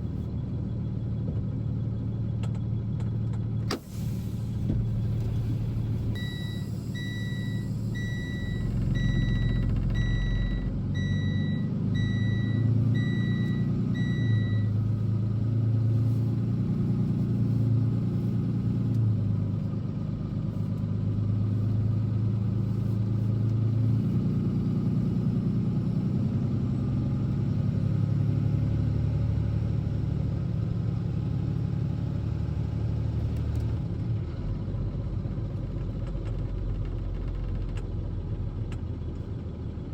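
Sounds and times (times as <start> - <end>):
truck engine running: 0.0 - 39.9
high electronic beep: 6.2 - 14.7.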